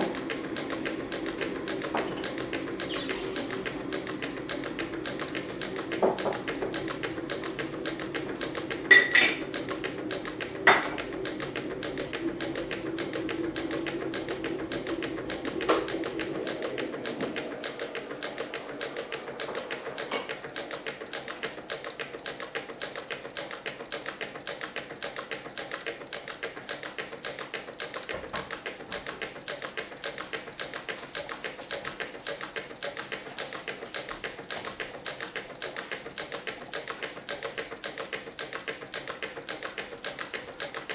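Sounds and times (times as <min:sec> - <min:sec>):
low hum: 0:00.0 - 0:20.3.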